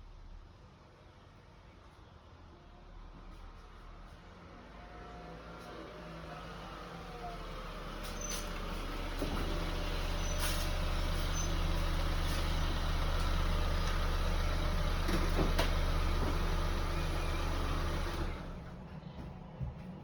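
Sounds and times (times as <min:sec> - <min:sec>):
car engine running: 0:08.8 - 0:18.8.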